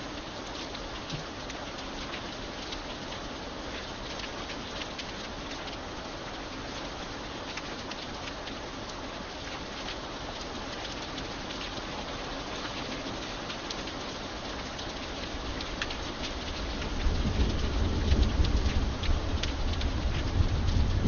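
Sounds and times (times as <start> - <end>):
steady rain with drops ticking: 0.0 - 21.0
low rumble of thunder: 16.4 - 21.0.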